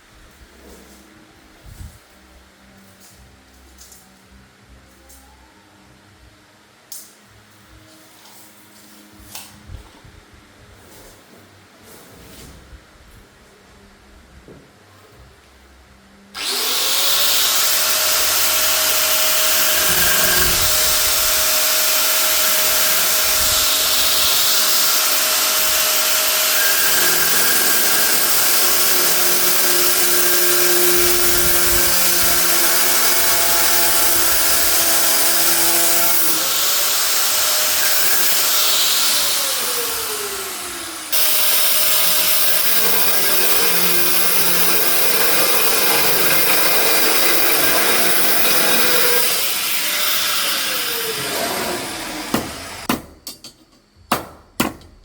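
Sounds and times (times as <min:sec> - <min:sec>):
power tool motor running: 0:16.4 - 0:52.9.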